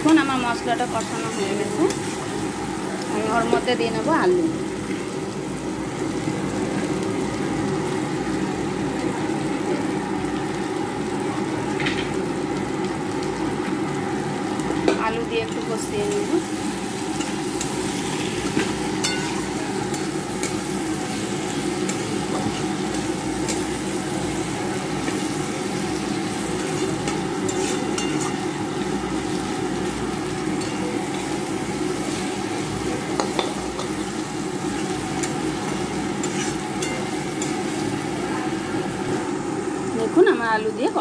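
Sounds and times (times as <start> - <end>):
potatoes sizzling in a pan: 0.0 - 41.0
spatula scraping a pan: 26.7 - 28.4, 34.8 - 37.7.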